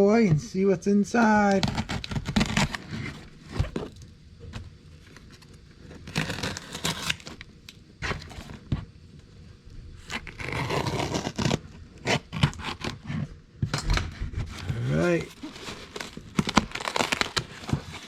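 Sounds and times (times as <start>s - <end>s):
packaging tearing and crinkling: 1.6s - 8.7s, 10.0s - 18.0s.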